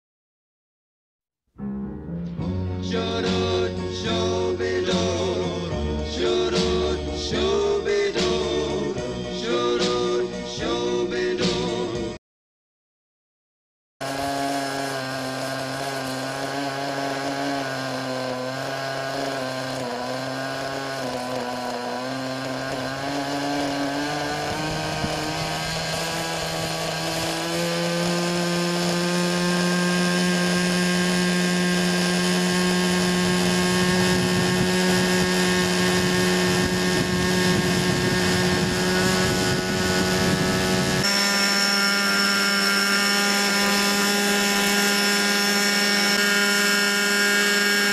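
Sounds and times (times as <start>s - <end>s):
rc helicopter engine and rotor: 14.0s - 47.9s.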